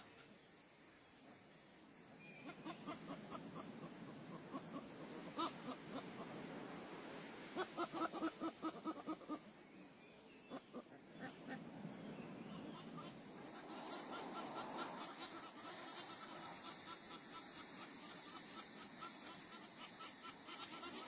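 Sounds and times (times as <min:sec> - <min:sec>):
fowl-like clucking calls: 0:02.4 - 0:06.5, 0:07.4 - 0:09.6, 0:12.5 - 0:21.0.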